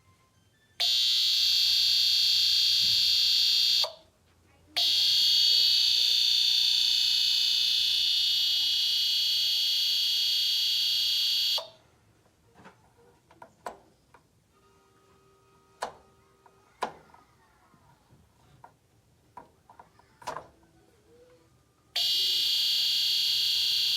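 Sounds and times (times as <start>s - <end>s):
heater high-pitched tone: 0.8s - 4.0s, 4.8s - 11.7s, 22.0s - 23.9s.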